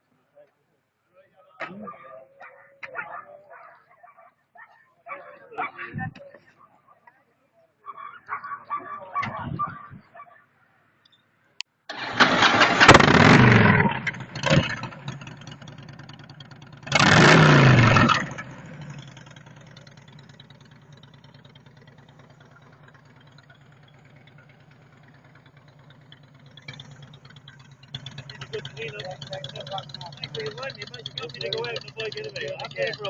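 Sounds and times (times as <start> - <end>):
motorcycle engine revving and idling: 11.9 - 33.0.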